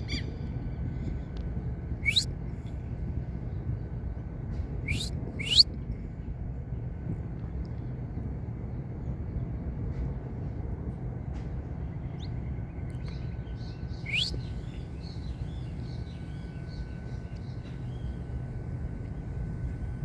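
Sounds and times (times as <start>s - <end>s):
finch chirping and whistling: 2.0s - 2.2s, 4.9s - 5.6s, 14.1s - 14.5s.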